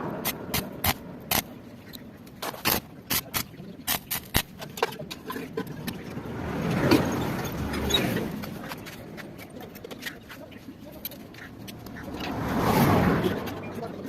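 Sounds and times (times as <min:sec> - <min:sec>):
sharp irregular clicks and knocks: 0:00.2 - 0:06.0.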